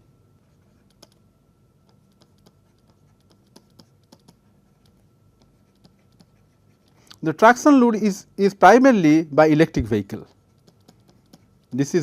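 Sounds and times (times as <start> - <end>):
faint steady hum: 0.0 - 12.0
pen writing on a surface: 1.8 - 7.0, 10.3 - 11.7.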